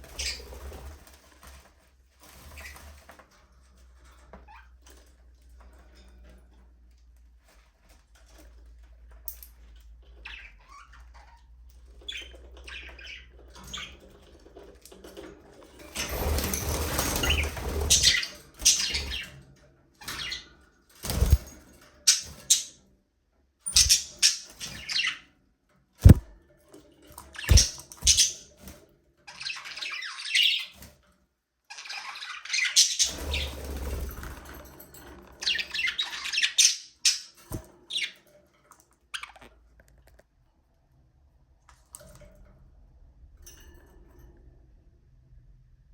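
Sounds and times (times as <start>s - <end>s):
budgerigars chirping and squawking: 0.0s - 0.5s, 12.0s - 14.0s, 17.2s - 19.3s, 22.1s - 22.8s, 23.7s - 25.2s, 26.0s - 26.2s, 27.4s - 28.5s, 29.3s - 30.7s, 31.8s - 33.8s, 35.4s - 38.2s.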